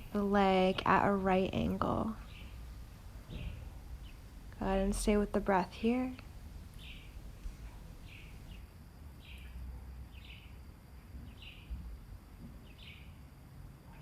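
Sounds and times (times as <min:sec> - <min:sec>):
low rumble: 0:00.0 - 0:08.6
bird high chirp: 0:06.8 - 0:07.2.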